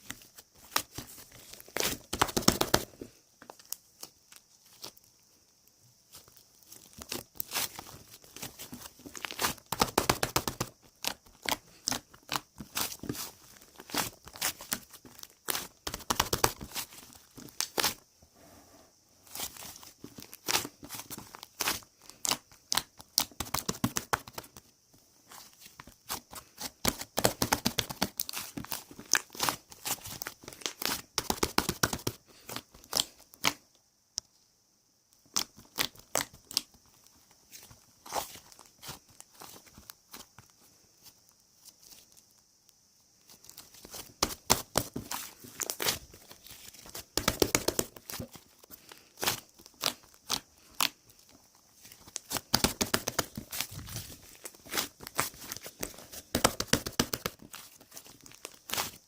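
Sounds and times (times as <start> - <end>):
slime crackling and popping: 26.9 - 32.2.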